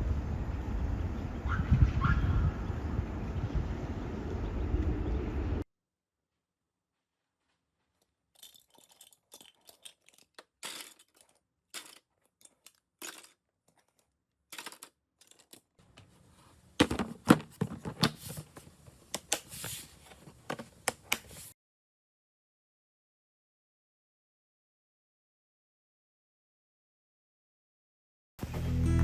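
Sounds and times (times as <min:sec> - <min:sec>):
small objects clicking and rustling: 0:07.9 - 0:15.8.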